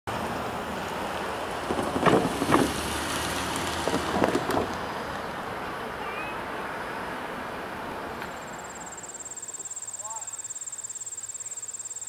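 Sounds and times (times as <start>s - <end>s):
wind buffeting microphone: 1.5s - 5.4s.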